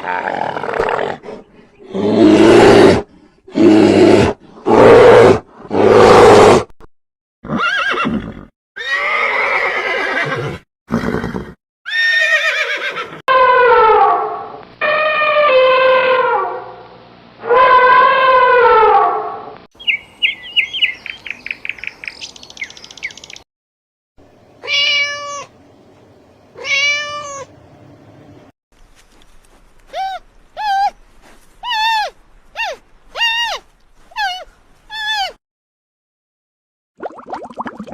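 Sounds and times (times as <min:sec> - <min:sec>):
cat meowing: 0:24.6 - 0:25.5, 0:26.6 - 0:27.5.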